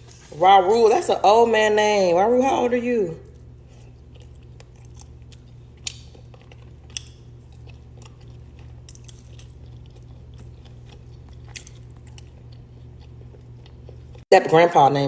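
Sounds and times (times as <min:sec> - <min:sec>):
person chewing and biting food: 0:03.3 - 0:14.2.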